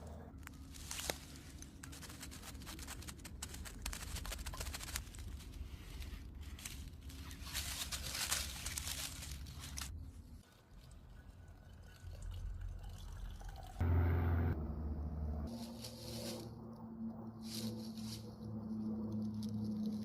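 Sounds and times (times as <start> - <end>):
dry rustling and crackling: 0.4 - 11.0, 17.4 - 20.0
low steady rumble: 5.2 - 20.0.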